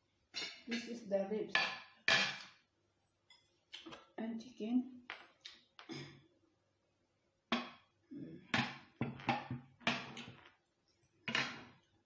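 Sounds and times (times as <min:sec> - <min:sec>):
dishes and cutlery knocking: 0:01.5 - 0:02.5, 0:11.3 - 0:11.8.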